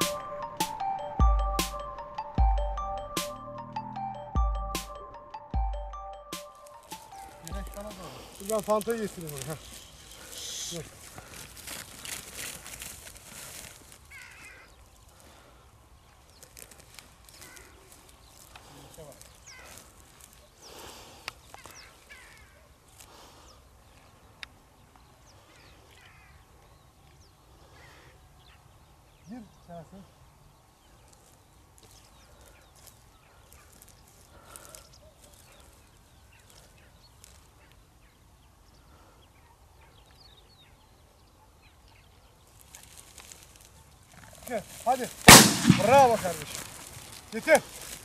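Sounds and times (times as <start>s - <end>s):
distant birds calling harshly: 0.0s - 48.0s
dry rustling and crackling: 6.4s - 26.3s, 30.7s - 38.3s, 42.0s - 48.0s.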